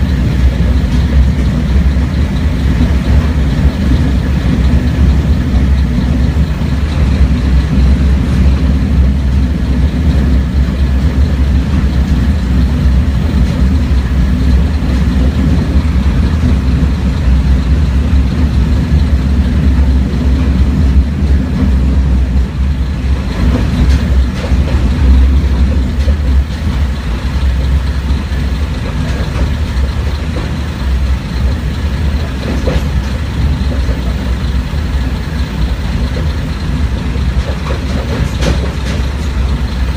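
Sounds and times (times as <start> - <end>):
railcar engine drone: 0.0 - 39.9
wheels running on rails: 0.0 - 39.9.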